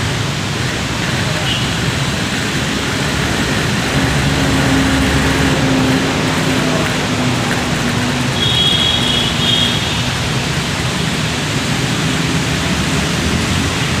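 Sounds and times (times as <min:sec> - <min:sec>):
heavy rain hissing: 0:00.0 - 0:14.0
vehicle engine running: 0:01.9 - 0:09.2.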